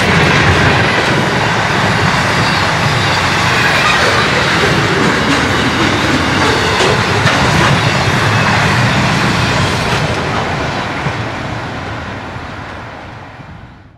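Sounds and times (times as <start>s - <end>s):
freight train rolling past: 0.0s - 13.9s
wheels clicking over rail joints: 2.9s - 9.0s.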